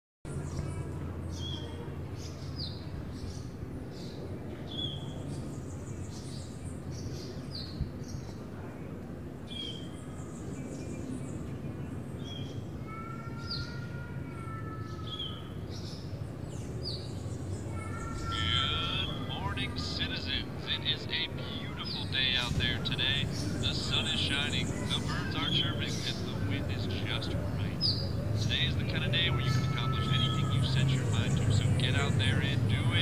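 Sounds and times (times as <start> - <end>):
low steady hum: 16.7 - 33.0.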